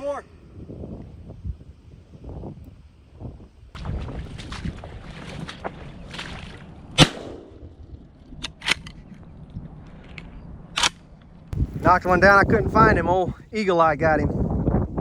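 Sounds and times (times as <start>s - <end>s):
wind noise on microphone: 0.0s - 15.0s
shotgun shot: 7.0s - 7.6s.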